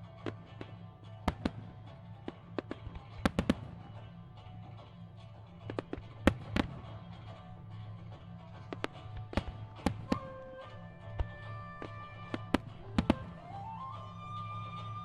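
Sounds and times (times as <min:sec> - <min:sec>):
music playing: 0:00.0 - 0:15.0
fireworks bursting: 0:00.2 - 0:03.9, 0:11.0 - 0:13.8.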